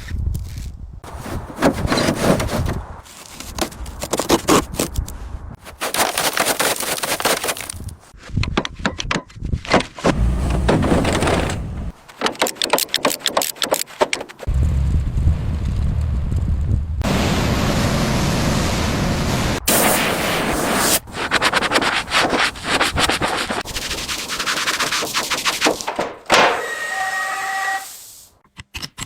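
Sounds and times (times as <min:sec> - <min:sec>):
scraping on car body: 0:01.0 - 0:04.6, 0:10.0 - 0:14.4, 0:21.3 - 0:26.6.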